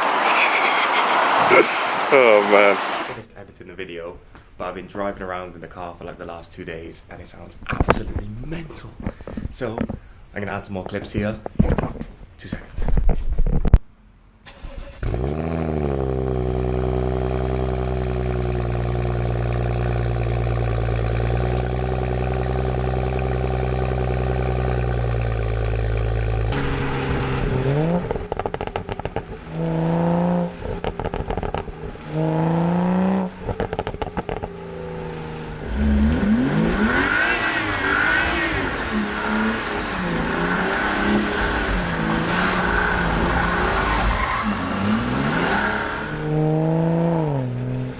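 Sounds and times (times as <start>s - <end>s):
car engine starting and revving: 14.4s - 47.9s.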